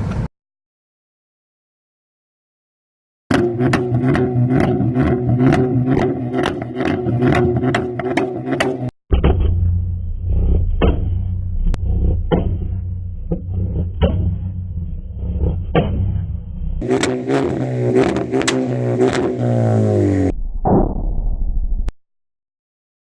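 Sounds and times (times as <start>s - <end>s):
car engine drone: 3.3s - 20.4s
exhaust popping and crackling: 3.3s - 21.0s
muffled exhaust rumble: 3.3s - 21.9s.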